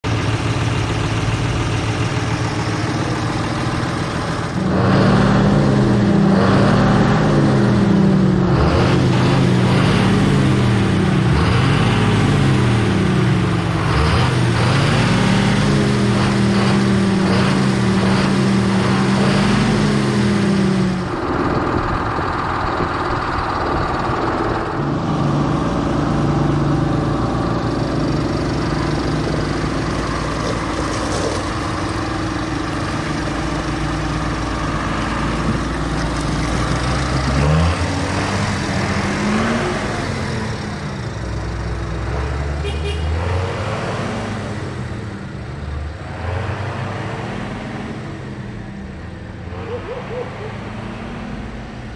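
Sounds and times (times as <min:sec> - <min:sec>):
tractor diesel engine revving: 0:00.0 - 0:51.9.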